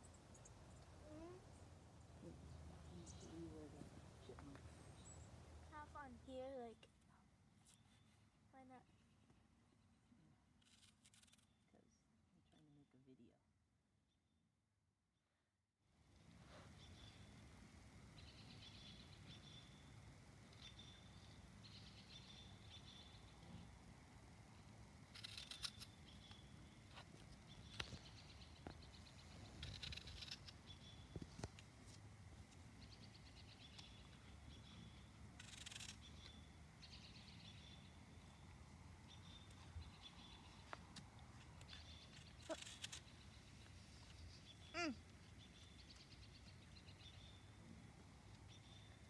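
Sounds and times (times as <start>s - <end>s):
small bird singing: 0.0s - 6.9s, 16.8s - 17.4s, 18.2s - 19.9s, 20.5s - 23.7s, 25.2s - 31.5s, 32.8s - 47.6s, 48.3s - 49.0s
scratchy sounds: 42.2s - 43.1s.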